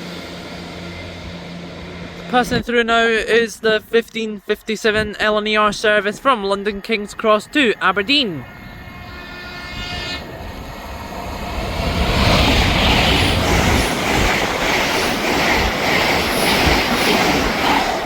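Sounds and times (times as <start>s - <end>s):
train passing at speed: 0.0s - 3.4s, 5.5s - 18.0s
train wheel clacks: 11.5s - 18.0s.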